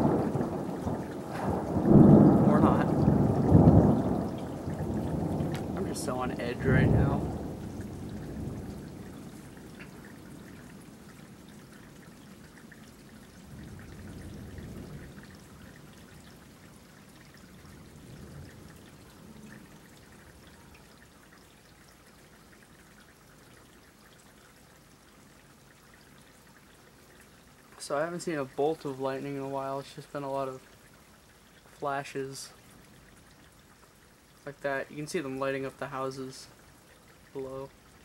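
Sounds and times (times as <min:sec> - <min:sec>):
thunder rumbling: 0:00.0 - 0:10.4, 0:13.5 - 0:15.6
faint rain falling: 0:00.0 - 0:38.0
water trickling and dripping: 0:00.0 - 0:38.0.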